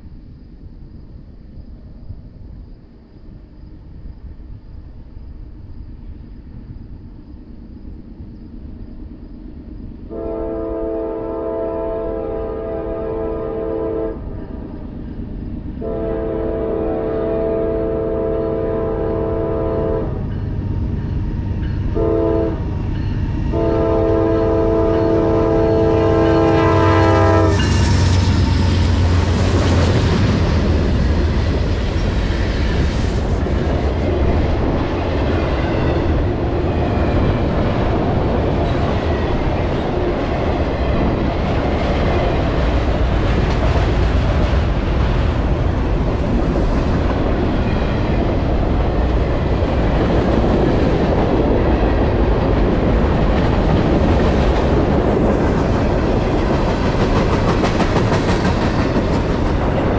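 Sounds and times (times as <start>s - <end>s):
locomotive air horn blasts: 10.1s - 14.3s, 15.8s - 20.2s, 21.9s - 22.6s, 23.5s - 28.4s
locomotive engine rumble: 14.2s - 59.9s.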